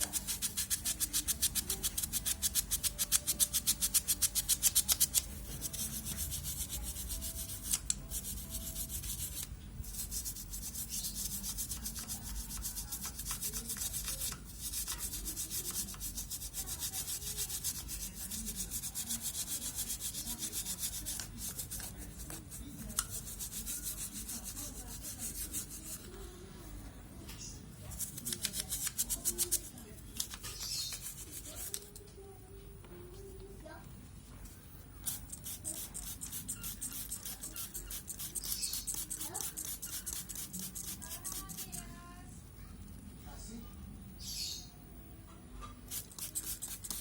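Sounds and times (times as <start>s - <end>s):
scrubbing strokes: 0.0s - 26.1s.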